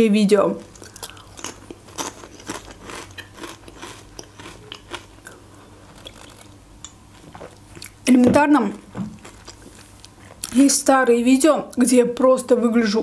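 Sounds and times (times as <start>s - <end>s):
potato chip crunching: 0.7s - 6.6s.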